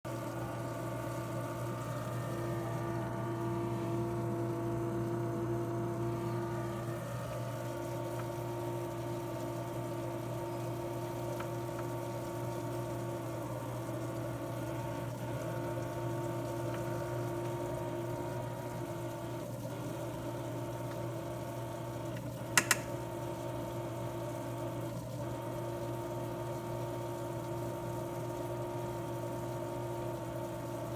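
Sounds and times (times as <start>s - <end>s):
steady mechanical hum: 0.1s - 30.9s
sharp clicks: 22.6s - 22.9s.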